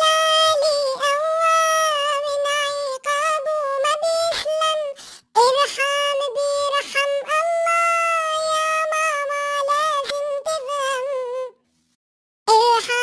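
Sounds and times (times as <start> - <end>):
pitched-up cartoon voice singing: 0.0 - 11.6, 12.5 - 13.0.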